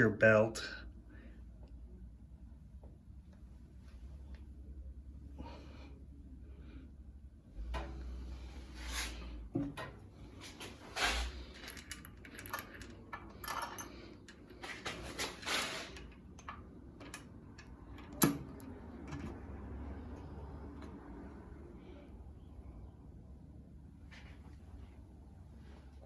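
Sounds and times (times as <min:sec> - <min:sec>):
steady low hum: 0:00.0 - 0:26.0
metallic clinks and knocks: 0:11.4 - 0:19.4.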